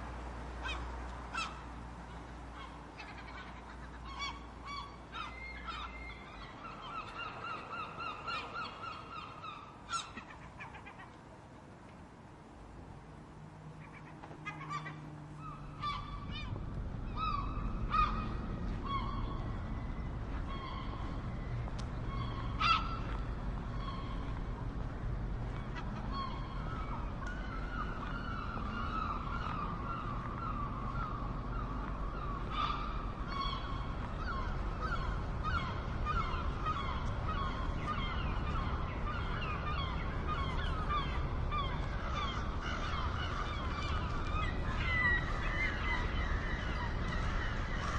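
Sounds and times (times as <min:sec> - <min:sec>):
gulls calling: 0:00.6 - 0:11.2, 0:13.8 - 0:47.9
steady low rumble: 0:15.2 - 0:47.9.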